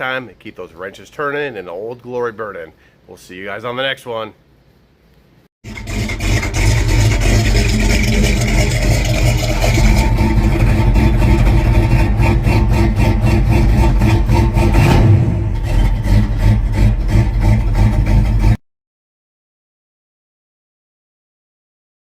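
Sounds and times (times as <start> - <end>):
car engine running: 5.6 - 18.6.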